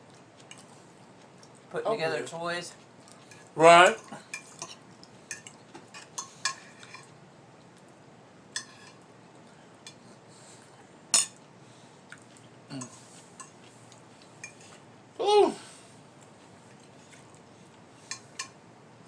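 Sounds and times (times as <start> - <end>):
cutlery clinking on plates: 11.2 - 11.4.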